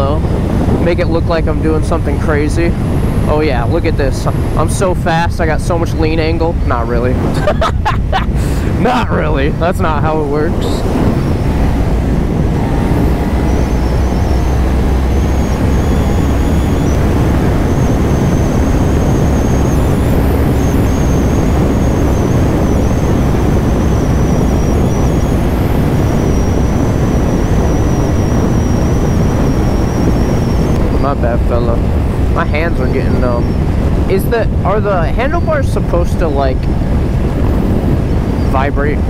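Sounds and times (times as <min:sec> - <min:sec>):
wind rush on microphone: 0:00.0 - 0:39.0
motorcycle engine running: 0:08.8 - 0:33.7.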